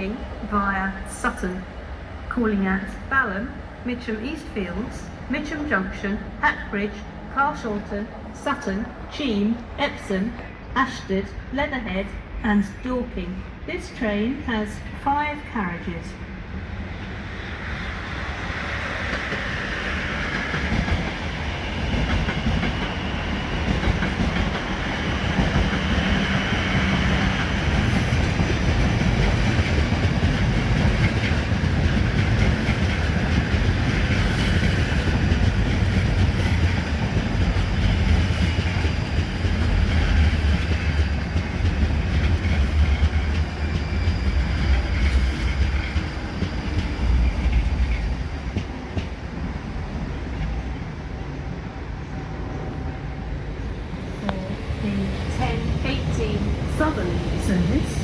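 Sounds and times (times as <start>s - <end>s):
train wheels clattering: 19.0s - 49.3s.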